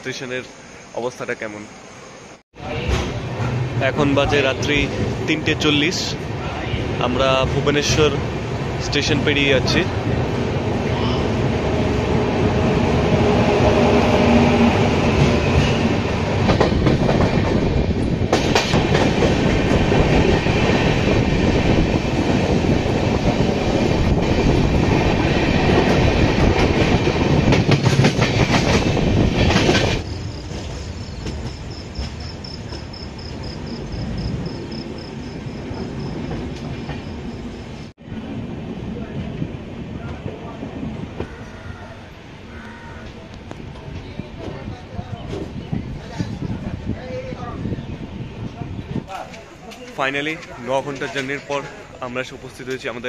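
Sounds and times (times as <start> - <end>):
train wheels clacking on rails: 12.8 - 37.2.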